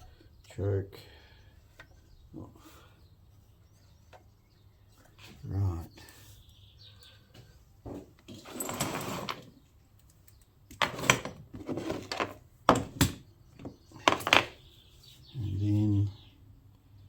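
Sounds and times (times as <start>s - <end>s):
scraping rustle: 7.9s - 9.6s, 10.8s - 12.4s
parts clicking and knocking: 7.9s - 14.6s.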